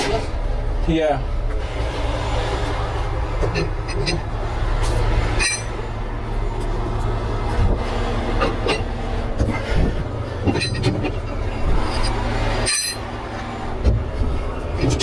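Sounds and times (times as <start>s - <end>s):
diesel engine humming: 0.0s - 15.0s
short metallic clinks: 5.3s - 5.8s, 11.9s - 13.1s.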